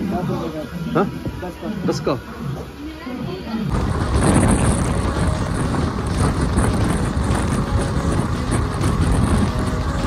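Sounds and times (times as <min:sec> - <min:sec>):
train wheels rushing on track: 0:02.6 - 0:10.0
wind rushing past microphone: 0:03.2 - 0:10.0.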